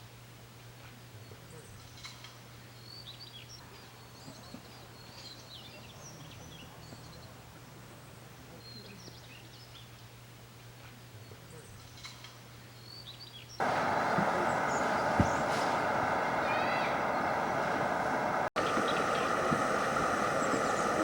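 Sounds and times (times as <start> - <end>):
small birds chirping: 0.9 - 10.2, 10.9 - 21.0
steady low hum: 13.6 - 21.0.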